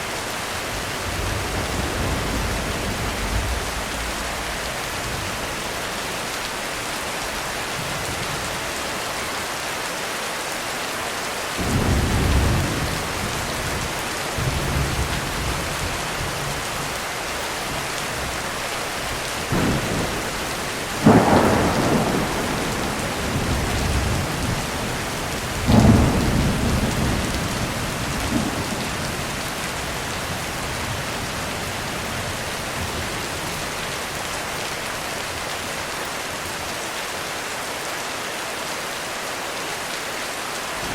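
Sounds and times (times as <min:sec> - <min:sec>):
heavy rain: 0:00.0 - 0:40.9
thunder rumbling and clapping: 0:00.7 - 0:06.5, 0:19.0 - 0:33.6.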